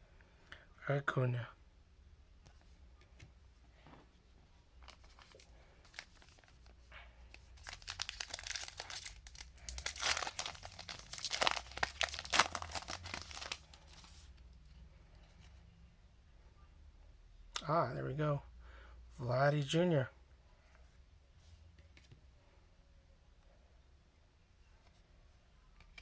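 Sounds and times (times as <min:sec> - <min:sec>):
foil wrapper tearing and crinkling: 0:07.4 - 0:14.1.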